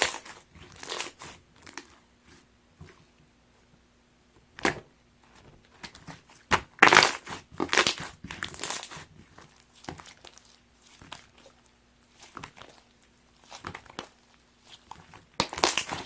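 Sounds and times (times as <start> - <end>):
slime squished by hand: 0.0 - 2.0, 5.8 - 16.0.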